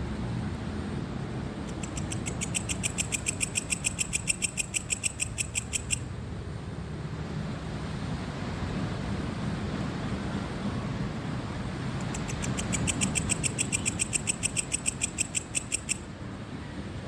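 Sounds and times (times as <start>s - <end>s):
cricket chirping: 1.7s - 6.1s, 12.0s - 16.1s.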